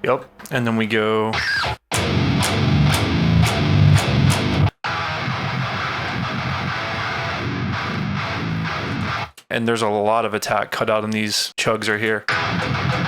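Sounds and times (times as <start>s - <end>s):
distorted electric guitar chugs: 1.4s - 9.3s, 12.3s - 13.0s
sharp drum hits: 12.3s - 13.0s.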